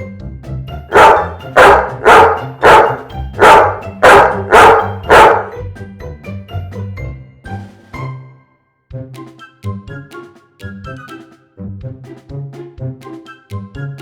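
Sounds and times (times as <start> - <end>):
background music: 0.0 - 14.0
dog barking: 0.9 - 5.6.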